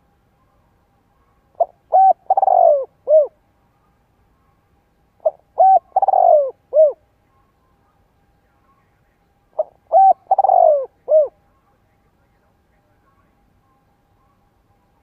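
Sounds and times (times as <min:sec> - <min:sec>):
dove cooing: 0:01.5 - 0:03.4, 0:05.2 - 0:07.0, 0:09.5 - 0:11.4.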